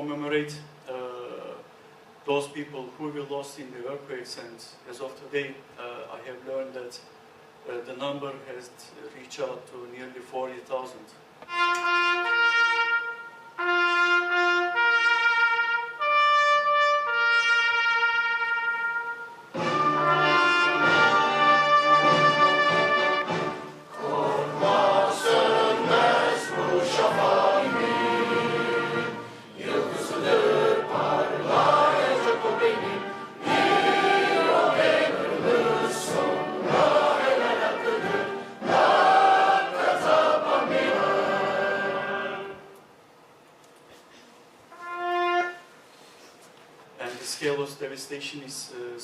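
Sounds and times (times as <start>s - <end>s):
choral singing: 20.8s - 42.8s.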